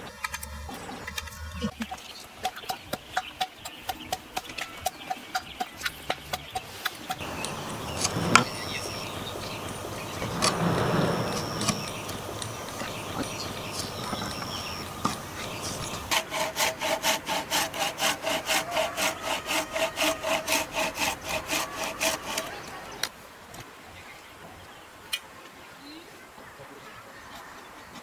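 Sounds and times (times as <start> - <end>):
hand saw cutting wood: 6.8 - 23.0.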